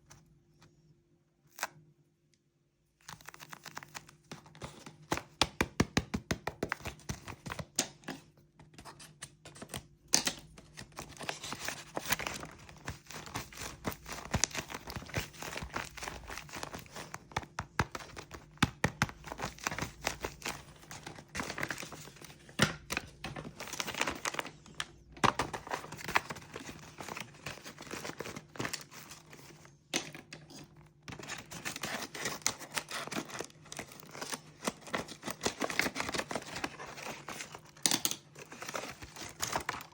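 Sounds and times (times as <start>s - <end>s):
packaging crinkling and tearing: 3.0s - 4.8s, 10.4s - 39.9s.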